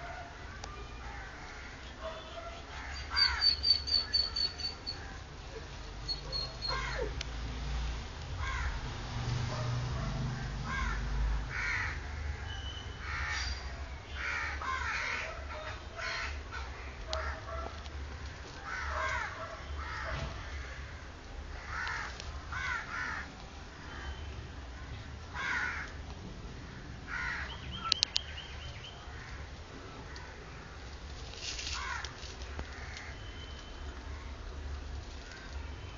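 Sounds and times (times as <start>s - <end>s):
puppies squeaking and whimpering: 6.0s - 7.2s
sharp clicks: 27.9s - 28.3s.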